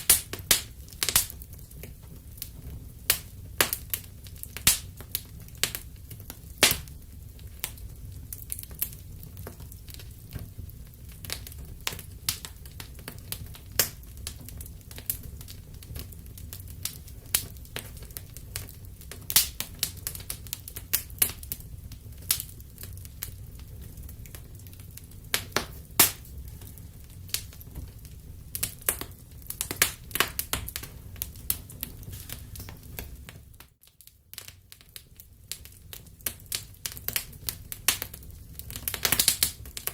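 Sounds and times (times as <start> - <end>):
fire crackling: 0.0 - 39.9
low rumble of burning: 0.0 - 39.9
sharp pops from fire: 0.0 - 39.9.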